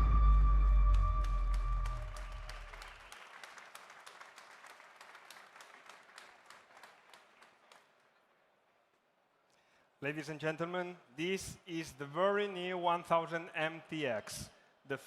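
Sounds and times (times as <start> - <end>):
audience clapping: 0.0 - 8.3.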